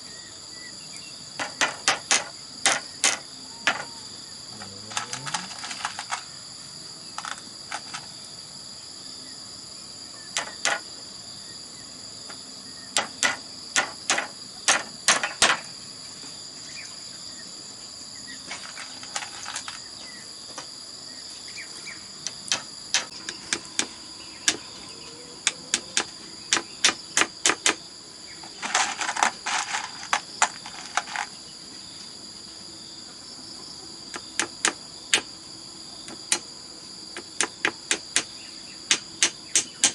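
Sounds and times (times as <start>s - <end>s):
insect chorus: 0.0s - 39.9s
sharp knocks and taps on bamboo: 1.4s - 3.9s, 10.4s - 10.8s, 13.0s - 15.7s, 22.2s - 24.6s, 25.4s - 27.8s, 34.1s - 35.3s, 36.0s - 36.5s, 37.2s - 39.9s.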